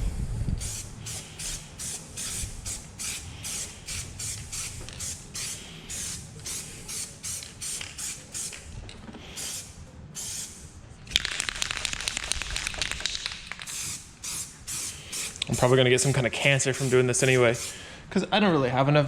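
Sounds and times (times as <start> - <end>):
spray paint can hissing: 0.6 - 8.7, 9.3 - 17.8
rapid clicks and crackle: 11.1 - 13.7.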